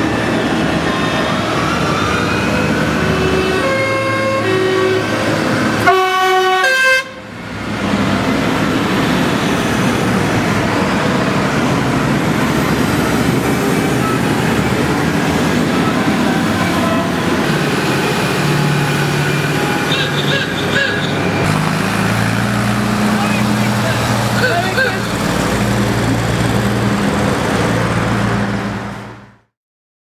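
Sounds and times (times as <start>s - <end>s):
tractor engines passing: 0.0s - 29.5s
tractor horns tooting: 2.6s - 9.8s, 10.4s - 26.9s.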